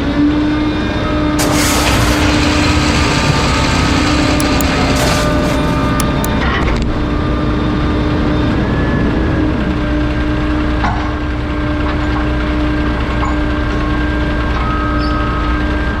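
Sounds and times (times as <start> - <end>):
garbage truck engine humming: 1.0 - 6.4
short click: 4.3 - 6.3.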